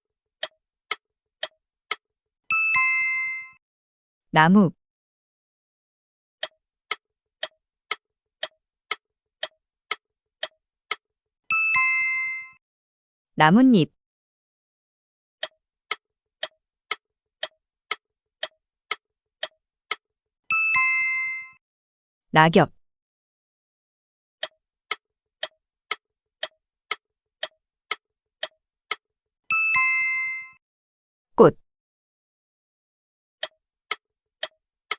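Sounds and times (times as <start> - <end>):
clock ticking: 0.4 - 3.6, 6.4 - 12.6, 15.4 - 20.0, 24.4 - 29.0, 33.4 - 34.9.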